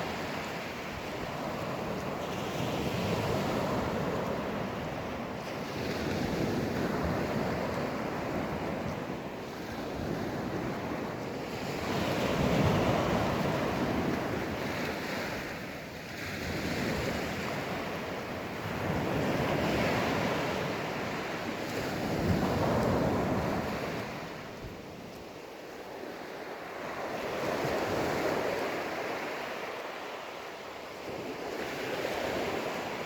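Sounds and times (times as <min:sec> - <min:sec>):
wind buffeting microphone: 0:00.0 - 0:15.7, 0:16.3 - 0:26.1.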